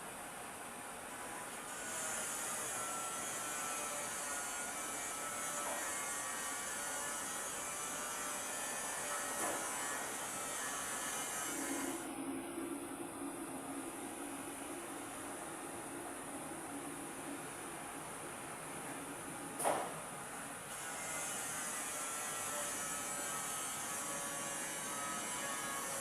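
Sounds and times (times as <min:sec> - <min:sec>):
steady low hum: 0:12.0 - 0:20.7.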